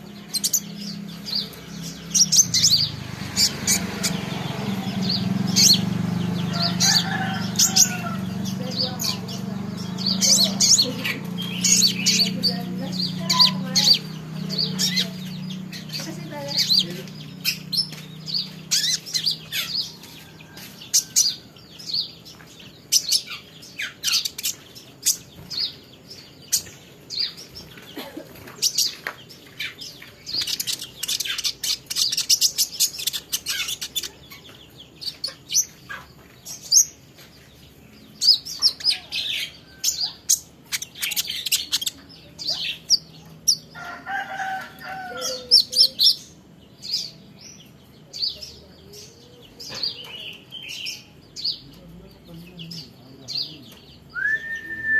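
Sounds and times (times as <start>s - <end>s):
songbird chirping: 0.0s - 54.9s.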